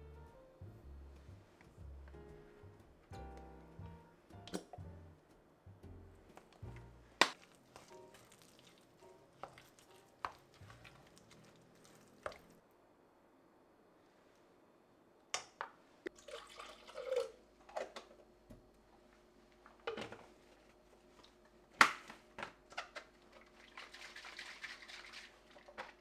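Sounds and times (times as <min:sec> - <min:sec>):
water running in sink: 0:00.0 - 0:12.6, 0:23.2 - 0:26.0.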